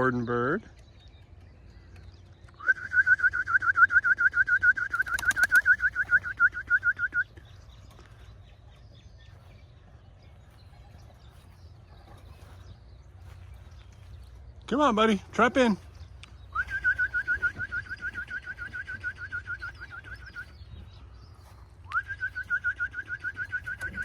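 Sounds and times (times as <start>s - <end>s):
rapid trilled whistle: 2.6s - 7.3s, 16.5s - 20.5s, 21.9s - 24.0s
sharp clicks: 4.8s - 6.1s.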